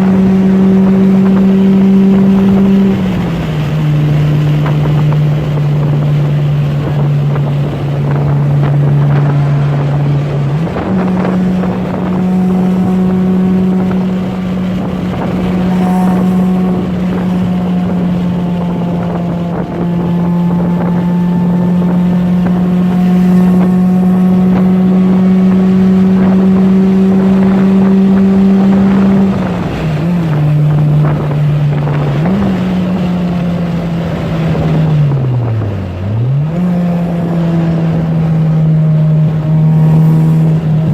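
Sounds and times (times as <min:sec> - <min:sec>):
car engine droning: 0:00.0 - 0:40.9
wind noise: 0:00.0 - 0:40.9.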